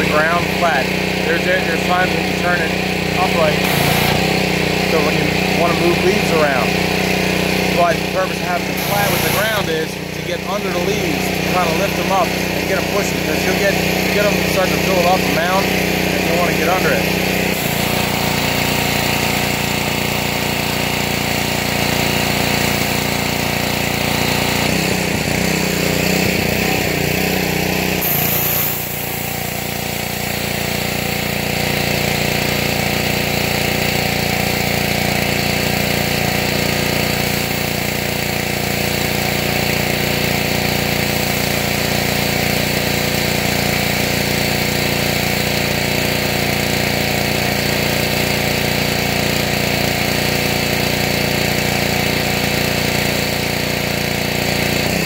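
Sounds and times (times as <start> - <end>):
small engine running: 0.0 - 55.0
high-pressure water jet hiss: 3.4 - 4.2, 8.6 - 9.6, 17.6 - 20.2, 28.0 - 34.6, 35.2 - 46.5.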